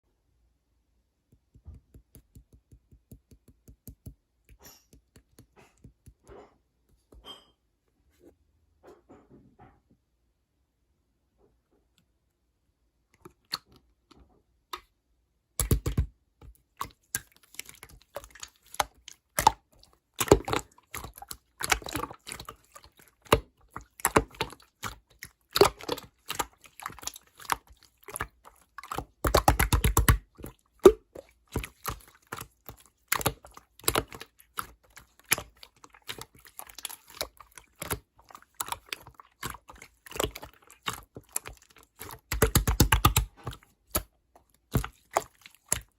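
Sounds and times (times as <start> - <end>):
slime played with by hand popping: 1.2 - 6.3, 14.7 - 22.5, 23.2 - 45.9.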